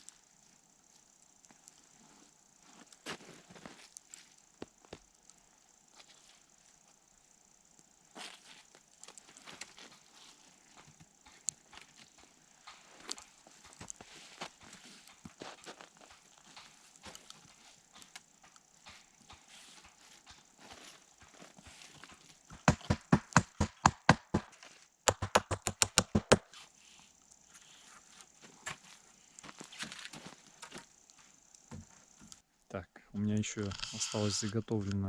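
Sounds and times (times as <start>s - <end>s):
hammer hitting nail: 22.6s - 24.5s, 25.1s - 26.4s.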